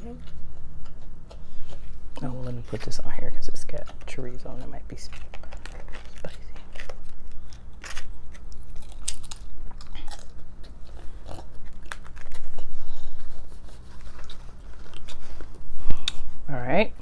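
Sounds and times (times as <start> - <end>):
crunching hard taco shell: 4.9 - 10.8.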